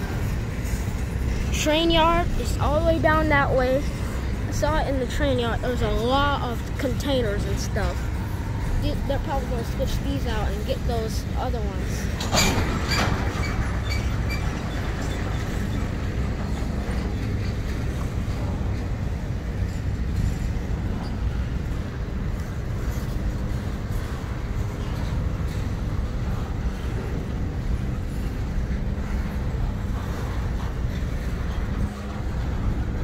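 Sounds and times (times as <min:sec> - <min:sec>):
diesel locomotive drone: 0:00.0 - 0:33.0
freight train rumbling past: 0:00.0 - 0:33.0.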